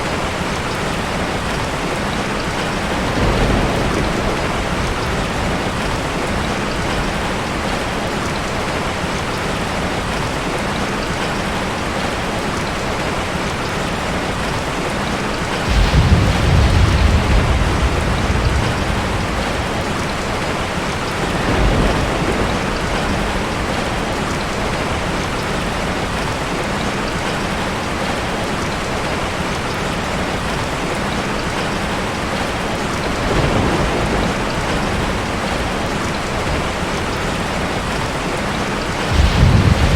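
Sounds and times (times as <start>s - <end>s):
heavy rain falling: 0.0s - 39.9s
thunder rumbling: 2.4s - 10.2s, 15.4s - 26.3s, 32.2s - 39.9s.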